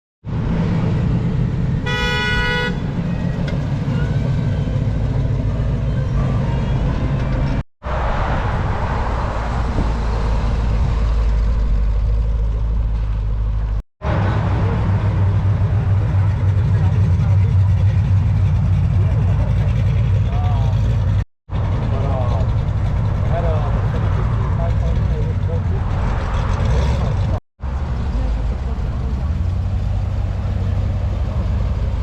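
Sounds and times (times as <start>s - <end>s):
car engines humming: 0.2s - 32.0s
car horn toot: 1.8s - 3.3s.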